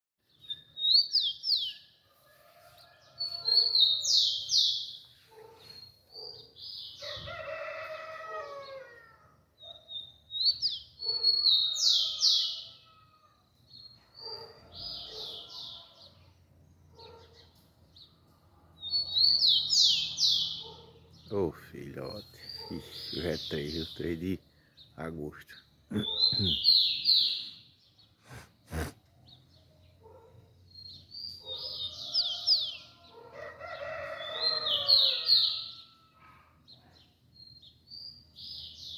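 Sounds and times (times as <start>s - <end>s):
sparrow whistled song: 0.3s - 1.9s.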